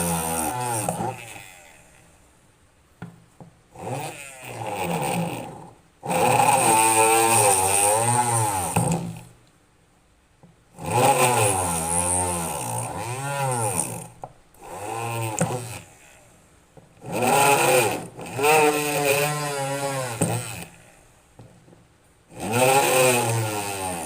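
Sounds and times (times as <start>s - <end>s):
electric drill motor whirring: 0.0s - 2.2s, 3.8s - 9.3s, 10.8s - 16.4s, 17.0s - 21.1s, 22.3s - 24.0s.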